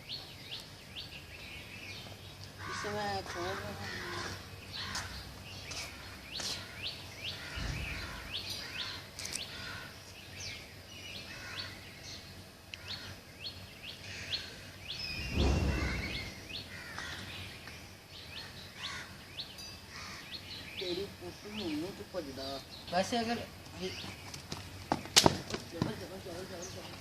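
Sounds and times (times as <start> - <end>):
small birds chirping: 0.0 - 27.0
brief low rumble: 15.0 - 16.6.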